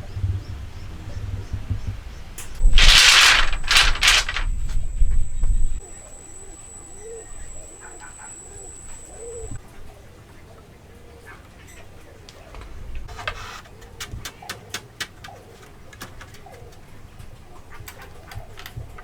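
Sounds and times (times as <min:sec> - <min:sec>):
dove cooing: 0:05.9 - 0:09.6.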